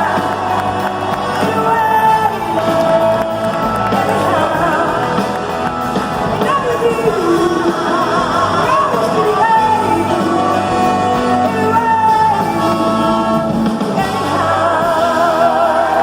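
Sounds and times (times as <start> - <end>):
blues-rock band playing: 0.0 - 16.0
person singing with vibrato: 0.0 - 16.0.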